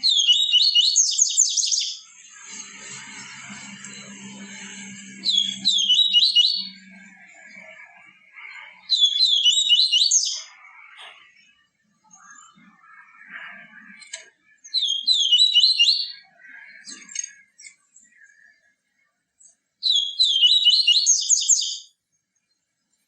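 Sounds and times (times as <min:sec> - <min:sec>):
bird twittering song: 0:00.0 - 0:23.0
soft bird chirps: 0:00.0 - 0:23.0.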